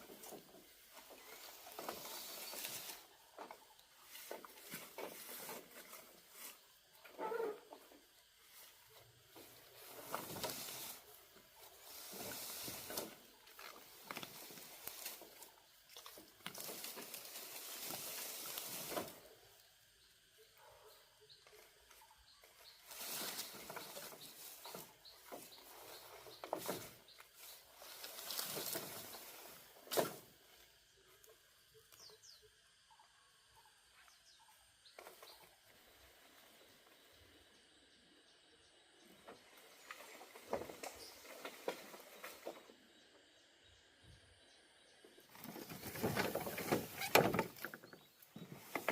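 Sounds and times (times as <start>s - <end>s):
rustling and scraping: 0.0s - 19.7s, 21.5s - 30.9s, 39.1s - 42.8s, 45.1s - 48.9s.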